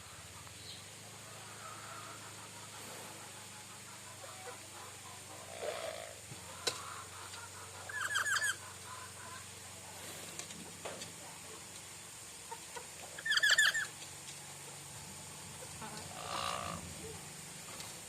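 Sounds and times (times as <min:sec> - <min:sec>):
bird chirping: 0:00.4 - 0:01.0, 0:07.5 - 0:09.0, 0:13.2 - 0:13.9.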